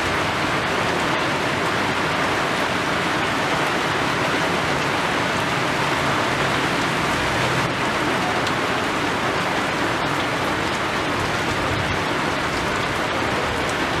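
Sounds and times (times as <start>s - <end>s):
steady rain falling: 0.0s - 14.0s
raindrop ticks: 6.8s - 14.0s.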